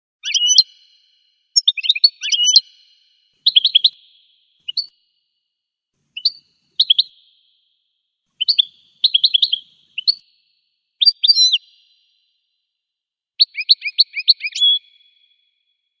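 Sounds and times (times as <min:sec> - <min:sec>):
goldfinch twittering song: 0:00.2 - 0:05.1, 0:06.2 - 0:07.7, 0:08.4 - 0:12.3, 0:13.4 - 0:15.6.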